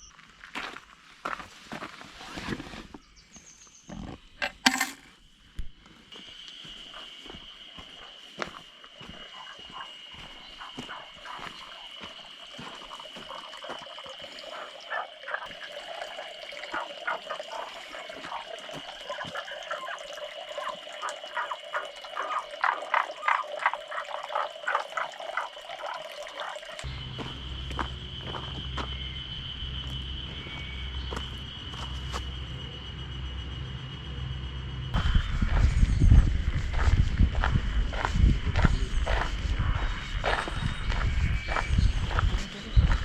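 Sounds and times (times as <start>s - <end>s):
high-pitched insect drone: 5.9s - 43.0s
croaking animal calls: 6.6s - 32.8s
water rushing: 9.2s - 26.9s.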